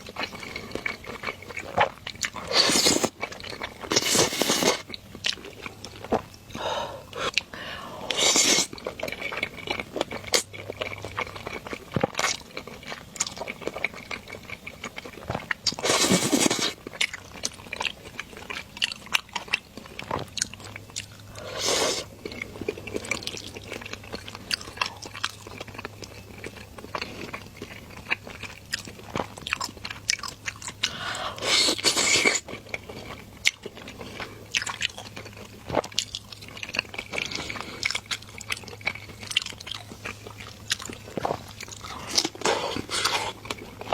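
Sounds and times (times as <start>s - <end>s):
wet chewing: 0.0s - 43.9s
slurping noodles: 2.4s - 3.2s, 3.9s - 4.9s, 7.1s - 8.9s, 15.7s - 16.8s, 21.3s - 22.4s, 30.9s - 32.5s, 41.2s - 43.9s.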